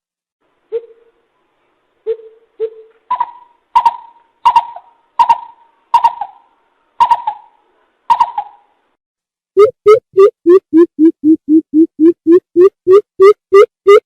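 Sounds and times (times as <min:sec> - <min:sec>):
bird hooting calls: 0:00.7 - 0:01.2, 0:02.1 - 0:08.7.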